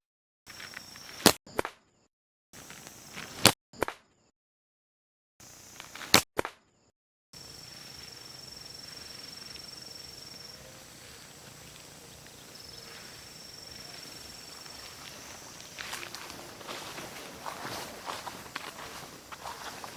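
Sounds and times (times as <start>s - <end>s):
sharp cracks: 5.8s - 6.6s
high-pitched insect drone: 7.4s - 19.9s.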